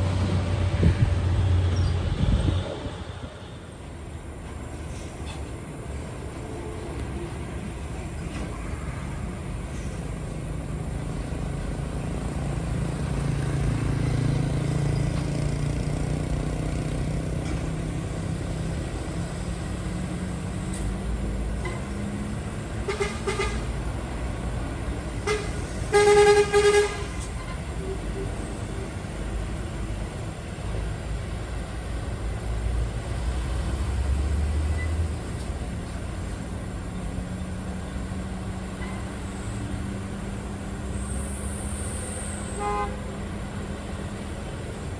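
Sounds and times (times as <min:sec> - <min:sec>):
diesel truck engines droning: 0:00.0 - 0:44.9
vehicle horn toots: 0:25.2 - 0:27.2, 0:42.5 - 0:43.0.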